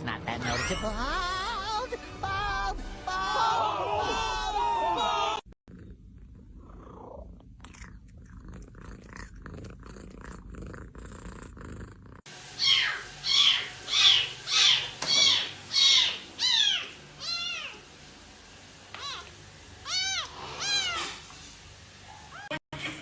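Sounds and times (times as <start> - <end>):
cat purring: 5.7 - 12.4.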